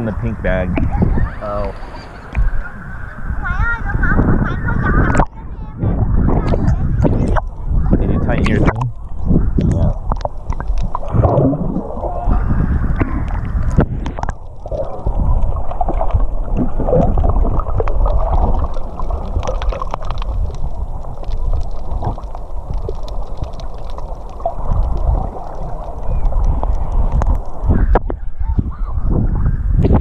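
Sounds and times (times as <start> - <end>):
muffled water sloshing underwater: 0.0 - 30.0
steady low rumble: 2.3 - 30.0
small clicks and pops: 8.4 - 12.1, 13.0 - 28.2.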